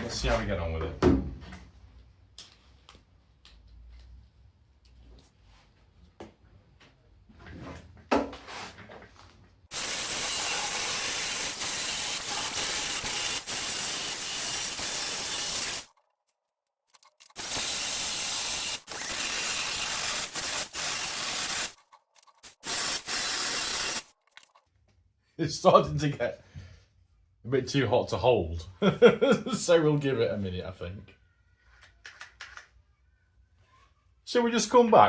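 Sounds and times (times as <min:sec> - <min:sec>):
belt sander grinding metal: 0:09.7 - 0:15.9, 0:17.2 - 0:24.1.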